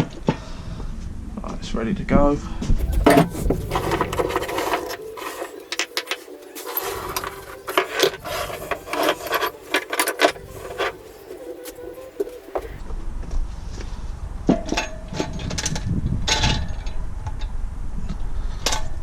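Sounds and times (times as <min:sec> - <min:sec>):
metal engine parts scraping and knocking: 0:02.8 - 0:12.8.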